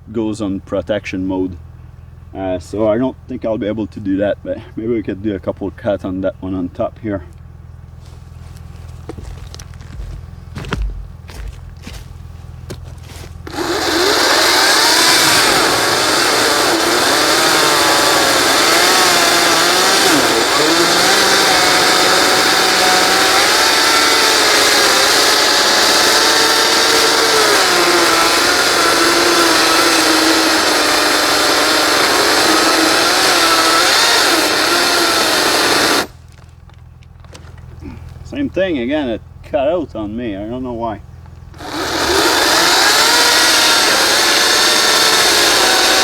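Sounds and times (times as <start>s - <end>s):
chainsaw cutting into a log: 9.1s - 36.4s, 41.5s - 46.0s.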